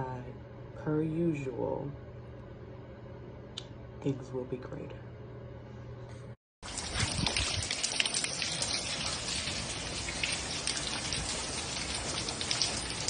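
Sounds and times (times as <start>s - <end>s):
rain on a hard surface: 6.6s - 13.0s.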